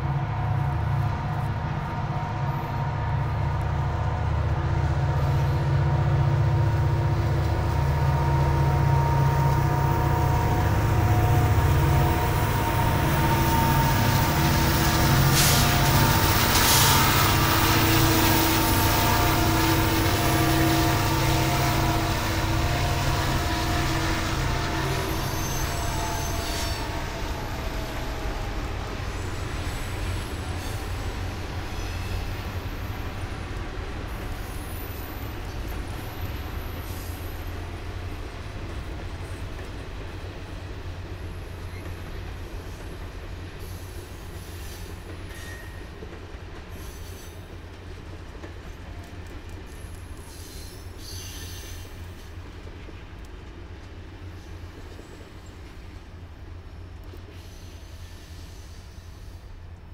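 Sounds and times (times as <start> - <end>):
train cars rumbling past: 0.0 - 59.9
high-pitched wheel squeals: 22.8 - 27.1, 45.3 - 45.9.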